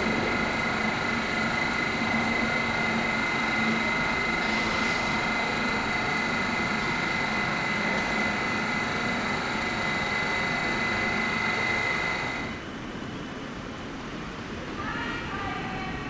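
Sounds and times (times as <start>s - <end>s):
high electrical whine: 0.0s - 12.7s
electric train humming: 0.0s - 13.0s.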